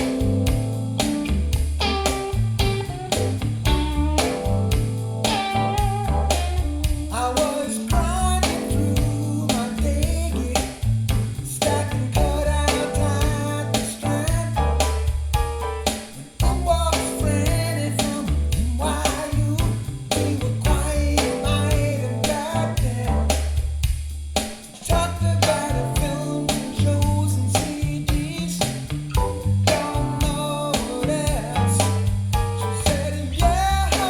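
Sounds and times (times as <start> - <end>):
song over speakers: 4.8 - 10.8, 11.6 - 15.7, 16.4 - 23.4, 24.9 - 28.7, 29.7 - 34.0.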